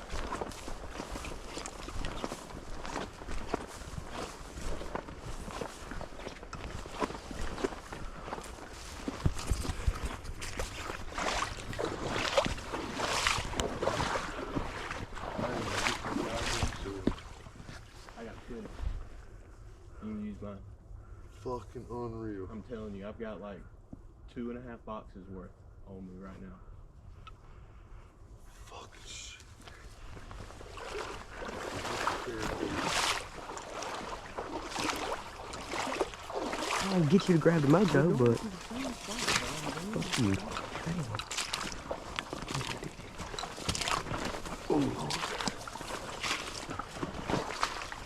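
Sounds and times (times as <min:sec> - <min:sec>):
splashing footsteps in water: 0:00.0 - 0:18.0, 0:30.1 - 0:48.0
wind rumble on microphone: 0:00.0 - 0:20.0.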